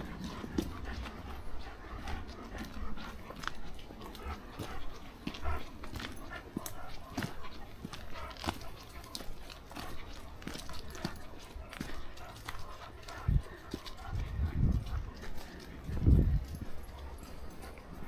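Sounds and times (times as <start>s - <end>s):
wind on microphone: 13.1s - 16.7s.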